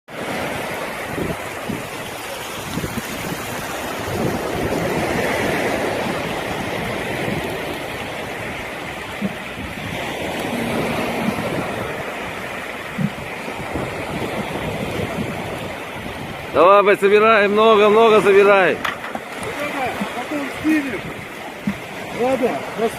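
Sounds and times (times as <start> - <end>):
surf washing onto beach: 0.1 - 22.9
wind buffeting microphone: 0.1 - 22.9.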